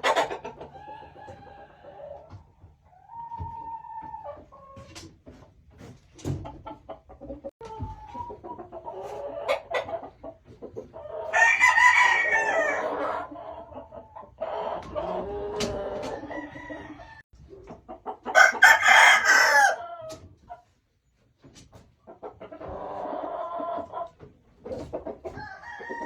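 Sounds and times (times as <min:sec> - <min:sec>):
rooster crowing: 0:11.3 - 0:13.1, 0:16.2 - 0:17.2, 0:18.4 - 0:19.9, 0:25.4 - 0:26.0
distant rooster crowing: 0:11.3 - 0:13.2, 0:15.7 - 0:17.3, 0:18.4 - 0:19.9, 0:25.4 - 0:26.0.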